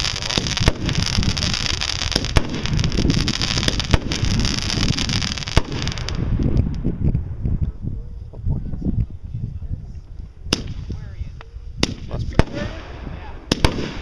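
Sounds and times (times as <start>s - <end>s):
fireworks hissing: 0.0s - 6.7s
fireworks bangs: 0.0s - 7.5s, 11.8s - 14.0s
fireworks crackling: 0.0s - 7.8s, 9.9s - 14.0s
wind rumbling on microphone: 0.0s - 14.0s.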